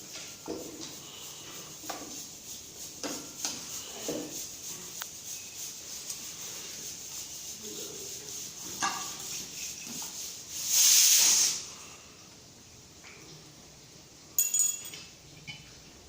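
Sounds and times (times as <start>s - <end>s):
faint steady hiss: 0.0s - 16.0s
burst of hissing gas: 0.5s - 5.1s, 9.2s - 12.3s.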